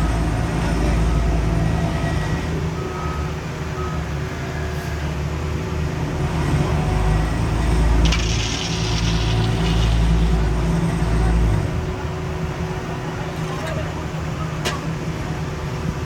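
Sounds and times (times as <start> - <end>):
diesel engine droning: 0.0 - 16.0
hissing rattle: 8.0 - 11.5.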